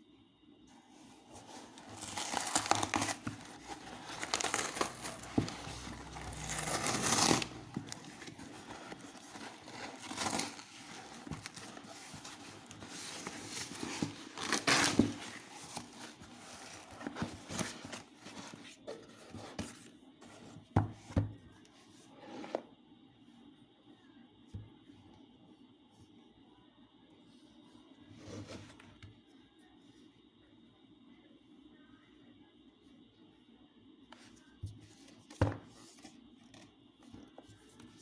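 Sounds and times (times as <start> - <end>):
cardboard and plastic rustling: 0.9 - 21.3.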